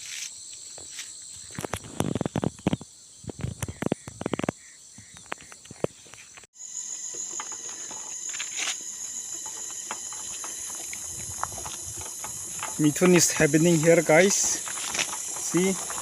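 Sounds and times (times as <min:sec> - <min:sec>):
insect chorus: 0:00.0 - 0:16.0
sharp clicks like footsteps: 0:09.8 - 0:16.0.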